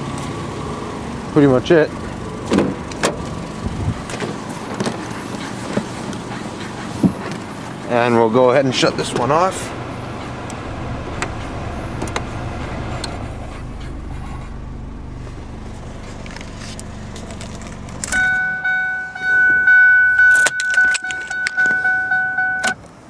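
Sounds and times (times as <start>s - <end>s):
car engine idling: 0.0s - 22.4s
two-note warning chime: 18.2s - 22.8s
keys jangling and clicking: 20.2s - 22.8s.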